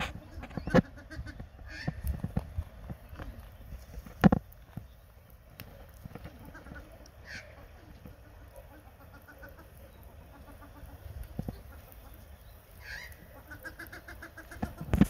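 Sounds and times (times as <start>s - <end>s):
birds chirping faintly: 0.0s - 15.0s.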